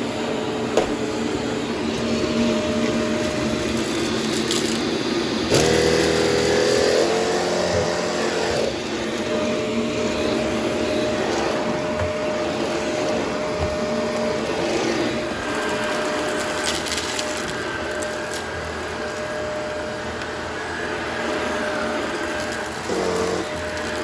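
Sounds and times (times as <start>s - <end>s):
vacuum cleaner running: 0.0s - 24.0s
debris crackling in vacuum: 15.0s - 24.0s.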